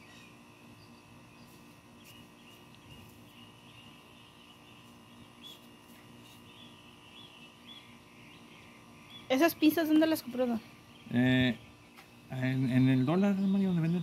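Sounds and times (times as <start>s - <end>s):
low steady hum: 0.0s - 14.0s
small birds chirping: 0.0s - 14.0s.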